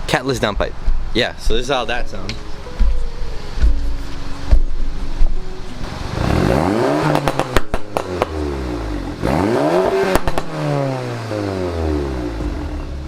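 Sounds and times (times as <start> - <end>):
car engine revving: 2.5 - 13.0
exhaust pops and crackles: 7.0 - 8.6, 9.8 - 10.9.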